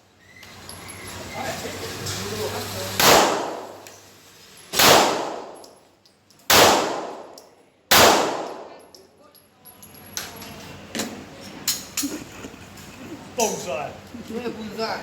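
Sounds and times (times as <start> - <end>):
pistol shots echoing: 3.0 - 3.9, 4.8 - 5.7, 6.5 - 8.8.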